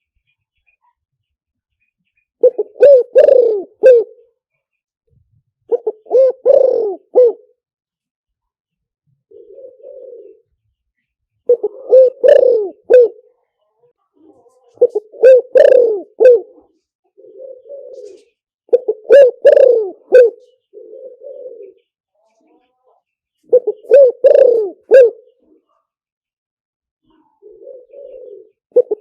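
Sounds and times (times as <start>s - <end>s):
dove cooing: 2.4s - 4.3s, 5.7s - 7.6s, 9.3s - 10.6s, 11.5s - 13.3s, 14.2s - 21.9s, 23.4s - 25.7s, 27.0s - 29.0s.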